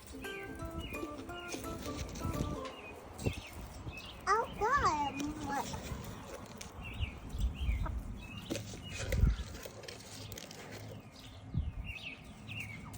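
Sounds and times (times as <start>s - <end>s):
birds chirping: 0.0s - 12.9s.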